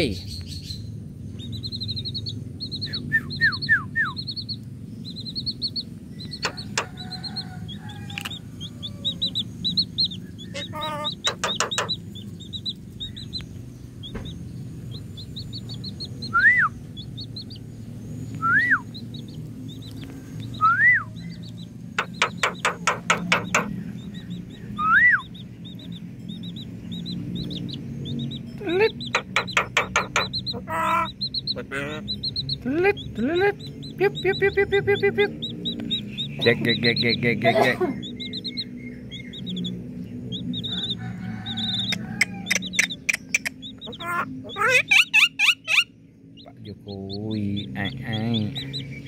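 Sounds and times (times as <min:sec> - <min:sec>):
birds chirping: 0:00.0 - 0:49.0
loud whistled bird calls: 0:01.7 - 0:04.5, 0:16.2 - 0:16.8, 0:18.3 - 0:19.3, 0:20.6 - 0:21.4, 0:22.0 - 0:25.5, 0:40.3 - 0:46.0
bird rapid clicking: 0:06.2 - 0:07.1, 0:11.1 - 0:13.5, 0:22.0 - 0:23.8, 0:29.0 - 0:30.6, 0:41.8 - 0:44.0.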